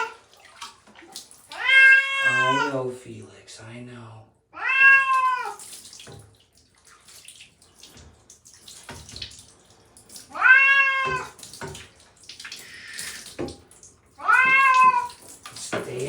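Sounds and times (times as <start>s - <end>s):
water pouring: 0.0s - 2.7s, 5.0s - 16.0s
water splashes: 0.0s - 2.7s, 4.8s - 16.0s
cat meowing in distress: 1.6s - 2.7s, 4.6s - 5.6s, 10.3s - 11.3s, 14.2s - 15.2s.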